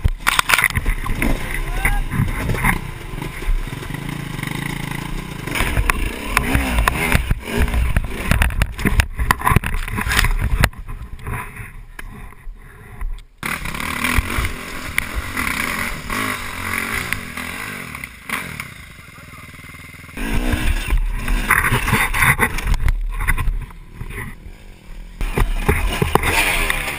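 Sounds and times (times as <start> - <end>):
dirt bike engine revving: 0.2 - 10.6, 13.4 - 26.9
knocks and clatter: 5.5 - 11.5, 25.2 - 26.9.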